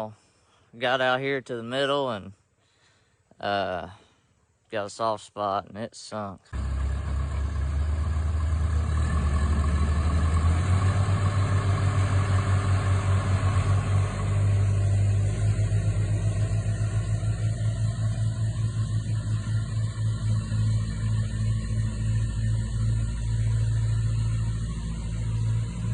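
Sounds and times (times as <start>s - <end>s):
heavy equipment engine running: 6.6s - 25.9s.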